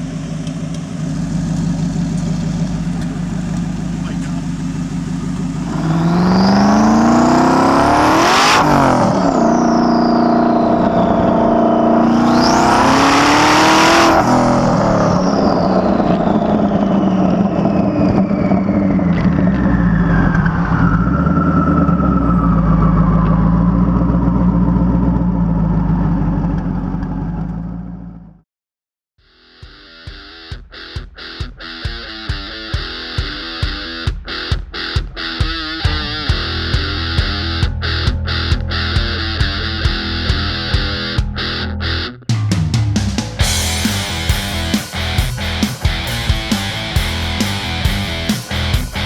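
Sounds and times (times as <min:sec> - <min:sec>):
car engine accelerating hard: 0:00.0 - 0:28.3, 0:43.1 - 0:49.0
high turbo whistle: 0:01.1 - 0:23.7.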